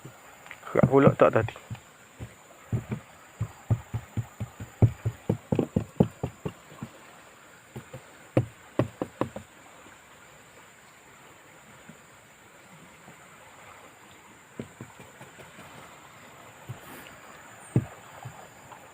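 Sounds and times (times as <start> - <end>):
tapping on boat hull: 0.8 - 7.0, 7.7 - 9.5, 14.6 - 15.8, 17.7 - 18.5.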